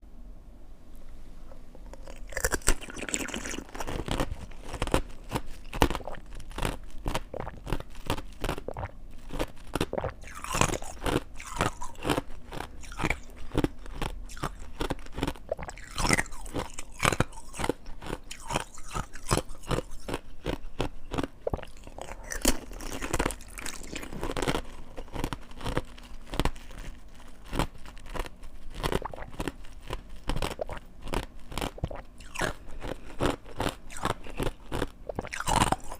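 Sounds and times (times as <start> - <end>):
ice being chewed: 1.8 - 35.9.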